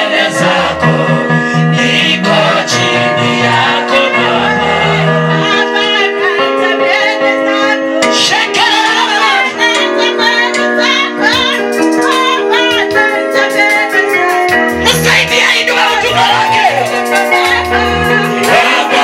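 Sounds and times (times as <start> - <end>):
woman singing worship song: 1.9 - 19.0
steady held chords: 12.4 - 19.0.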